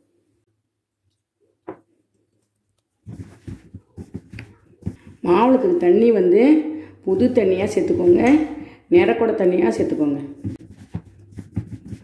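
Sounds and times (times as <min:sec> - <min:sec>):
dough mixed by hand in bowl: 0:01.9 - 0:06.0, 0:07.1 - 0:12.0.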